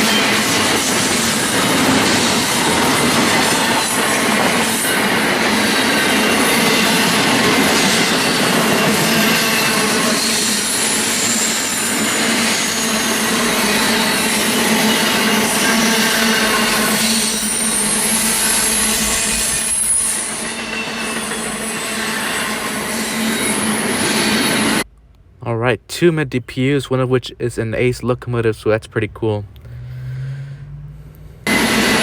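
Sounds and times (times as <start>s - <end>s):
high wheel squeal: 0.0s - 24.8s, 29.7s - 32.0s
freight train wheels on rails: 0.0s - 24.9s, 31.4s - 32.0s.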